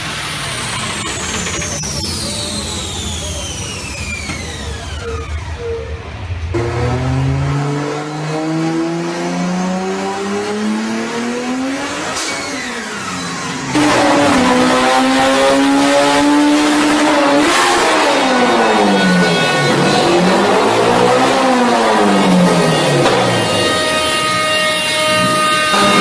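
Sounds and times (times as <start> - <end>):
car engine accelerating hard: 0.0 - 26.0.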